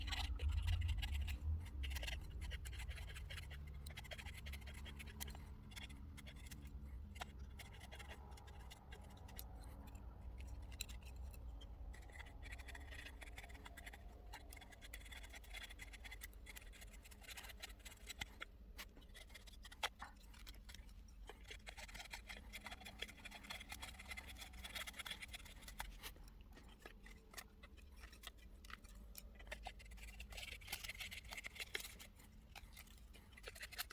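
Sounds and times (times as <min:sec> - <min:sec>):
low rumble: 0:00.0 - 0:03.0
knife scraping wood: 0:00.0 - 0:33.9.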